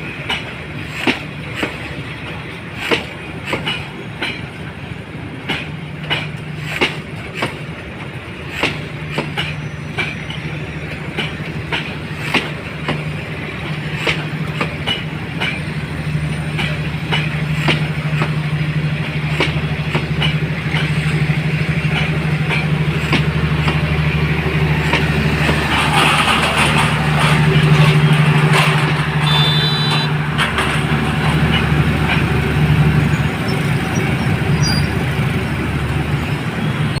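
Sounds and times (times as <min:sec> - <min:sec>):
wheels clicking over rail joints: 0:00.0 - 0:36.8
diesel locomotive engine humming: 0:00.0 - 0:37.0
high squeal: 0:29.2 - 0:30.2.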